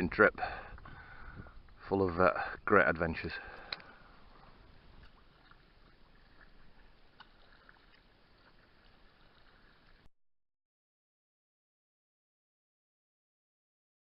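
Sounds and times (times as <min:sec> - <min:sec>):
faint water lapping: 0:00.3 - 0:10.1
light clicks: 0:03.6 - 0:03.9.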